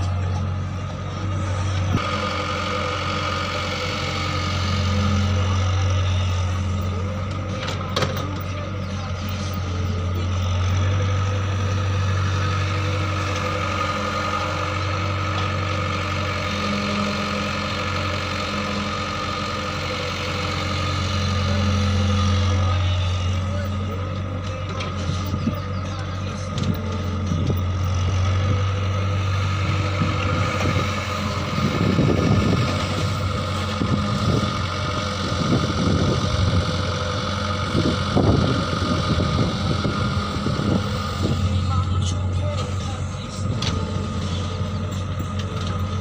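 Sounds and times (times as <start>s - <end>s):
farm machine engine running: 0.0s - 46.0s.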